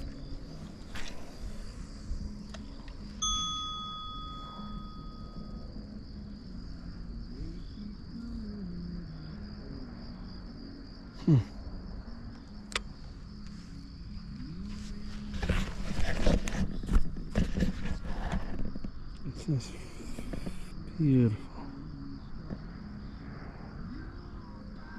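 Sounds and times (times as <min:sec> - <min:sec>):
high-pitched whine: 0:00.0 - 0:10.9
metallic bell-like ding: 0:03.2 - 0:05.7.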